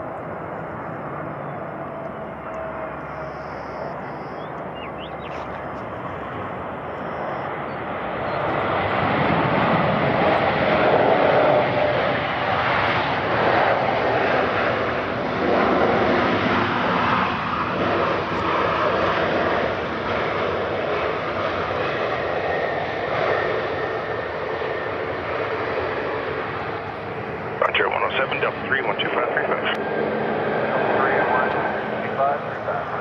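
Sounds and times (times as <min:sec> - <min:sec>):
airliner engine rush: 0:00.0 - 0:33.0.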